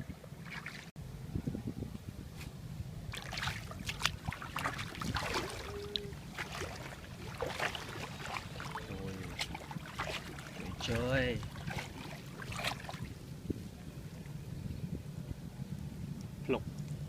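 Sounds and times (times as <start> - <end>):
water splashing in shallow water: 0.0 - 0.9, 3.0 - 14.4
steady low rumble: 0.0 - 17.0.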